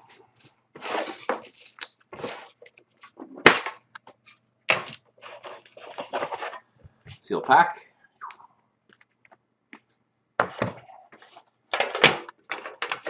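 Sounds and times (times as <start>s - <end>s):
cards and packaging rustling: 0.8s - 7.3s.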